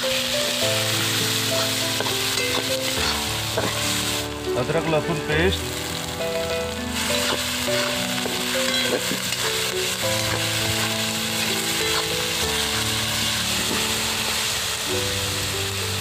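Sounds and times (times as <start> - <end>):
background music: 0.0 - 16.0
food sizzling in oil: 0.0 - 16.0
metal spatula stirring: 1.2 - 4.2, 6.9 - 13.9.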